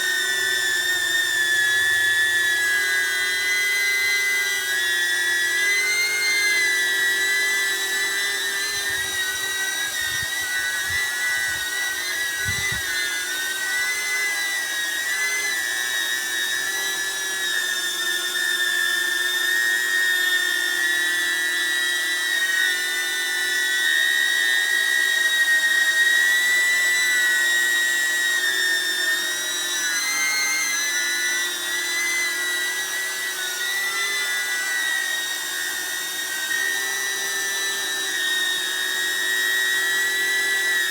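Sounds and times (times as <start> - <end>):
drone high-pitched whine: 0.0 - 17.5.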